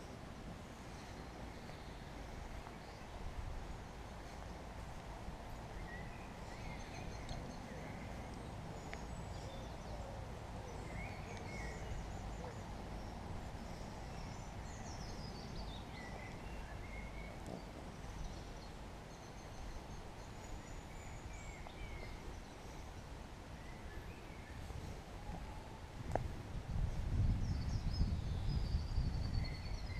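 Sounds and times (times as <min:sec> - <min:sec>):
songbirds chirping: 0:00.0 - 0:29.9.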